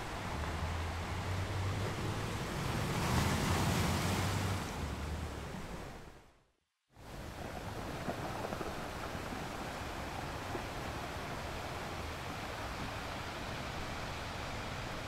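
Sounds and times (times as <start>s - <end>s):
ocean surf washing on beach: 0.0s - 6.0s, 7.0s - 15.0s.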